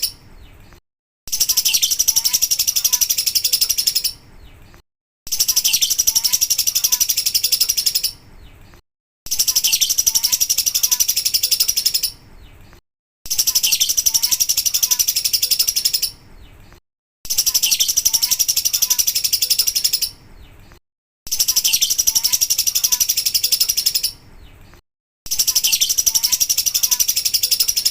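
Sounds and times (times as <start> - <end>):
lovebird chattering trill: 1.3 - 4.3, 5.3 - 8.2, 9.3 - 12.2, 13.3 - 16.2, 17.3 - 20.5, 21.3 - 24.2, 25.3 - 27.9.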